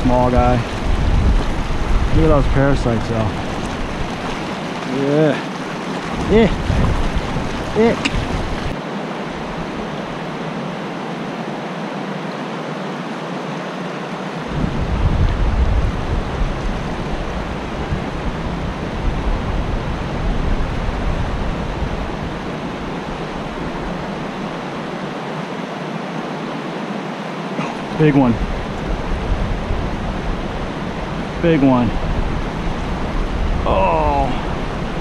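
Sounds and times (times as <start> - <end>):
water rushing over rocks: 0.0 - 35.0.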